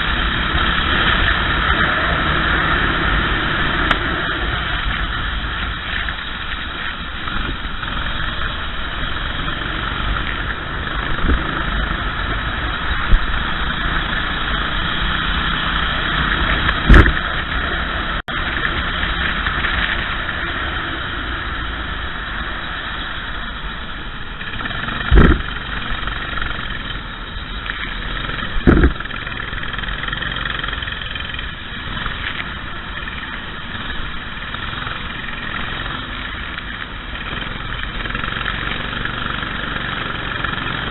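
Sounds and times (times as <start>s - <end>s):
racing kart engine: 0.0s - 40.9s
short loud thumps: 28.6s - 29.0s.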